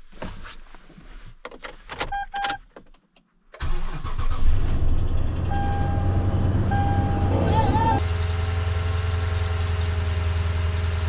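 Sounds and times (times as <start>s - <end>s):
truck engine starting and idling: 3.6s - 11.0s
warning chime: 5.6s - 8.0s.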